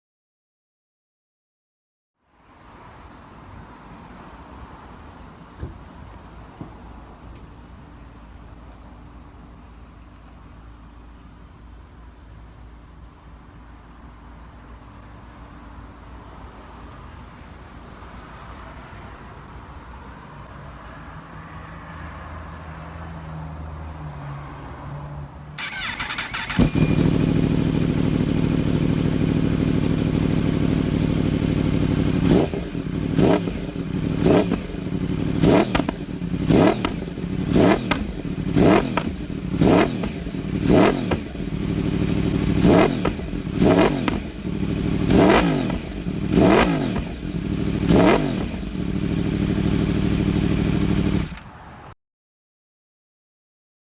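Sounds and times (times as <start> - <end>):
motorcycle engine idling: 25.6 - 51.4
motorcycle engine revving: 25.6 - 51.5
motorcycle engine starting: 25.6 - 51.6.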